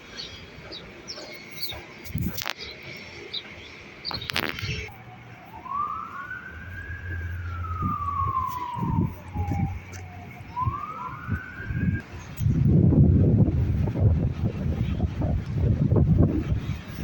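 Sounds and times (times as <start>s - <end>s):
wind buffeting microphone: 0.0s - 17.0s
emergency siren wailing: 4.4s - 12.2s.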